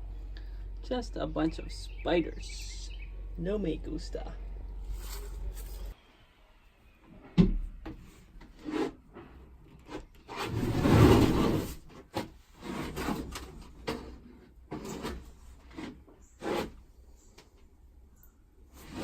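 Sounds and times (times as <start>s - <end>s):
scraping rub: 4.8s - 6.0s, 8.5s - 16.9s, 18.7s - 19.0s.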